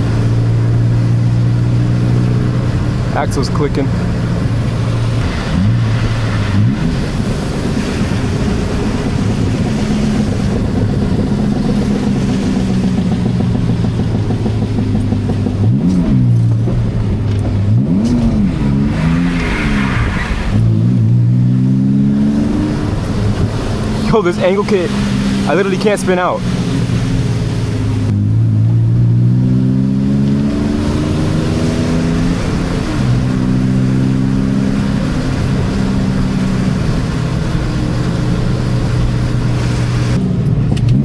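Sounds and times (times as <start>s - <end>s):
car engine running: 0.0s - 41.0s
tyres hissing on wet road: 4.9s - 10.6s.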